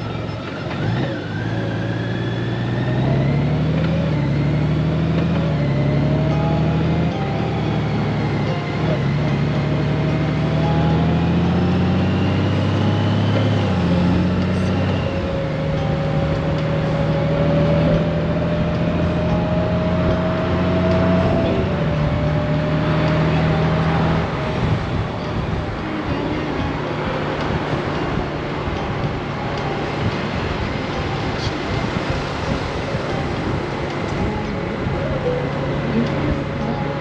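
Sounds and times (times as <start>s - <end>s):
motorcycle engine running: 0.0s - 37.0s
road noise: 0.0s - 37.0s
wind noise: 13.1s - 37.0s.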